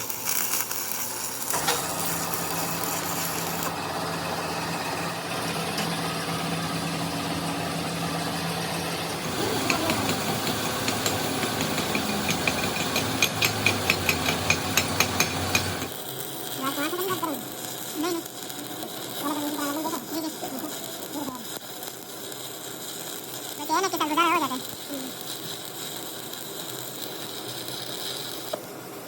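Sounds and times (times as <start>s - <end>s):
machine motor running: 1.5s - 15.9s.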